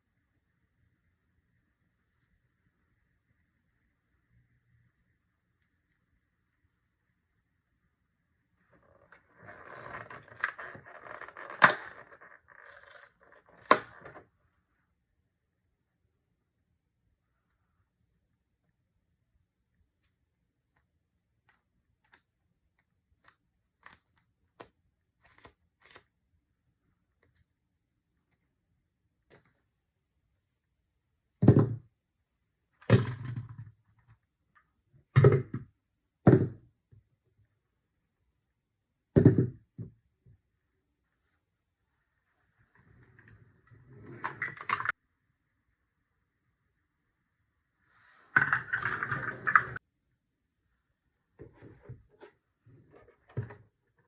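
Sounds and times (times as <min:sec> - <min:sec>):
toy pieces set down thunks: 0:48.3 - 0:49.8.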